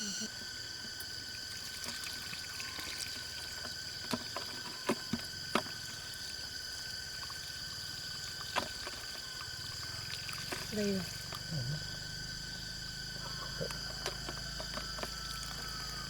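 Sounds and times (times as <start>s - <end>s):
high drone of insects: 0.0s - 16.0s
water drips and splashes: 0.8s - 11.5s.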